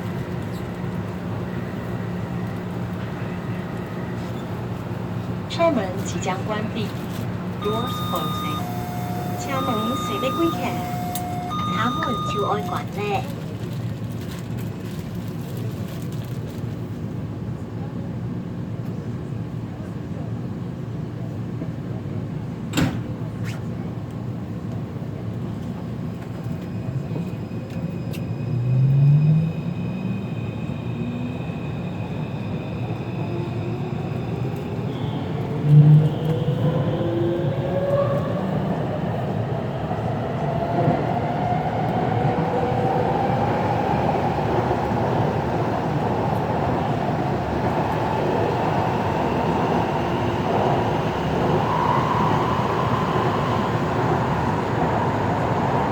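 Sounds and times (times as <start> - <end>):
wheels rumbling on rail: 0.0 - 55.9.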